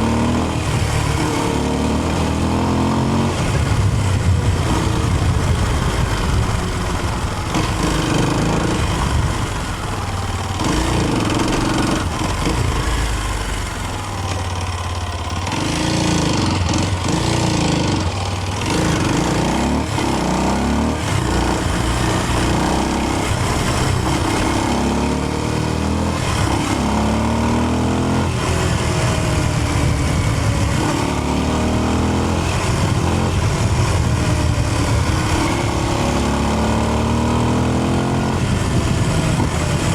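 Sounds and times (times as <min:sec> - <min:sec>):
motorcycle engine revving: 0:00.0 - 0:39.9
steady rushing noise: 0:03.2 - 0:20.2.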